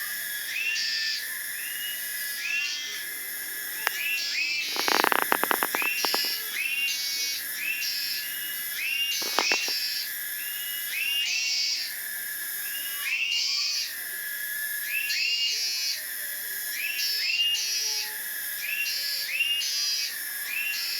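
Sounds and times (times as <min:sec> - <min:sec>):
cicadas calling: 0:00.0 - 0:20.9
rattle of rapid clicks: 0:04.6 - 0:06.4, 0:09.2 - 0:09.7.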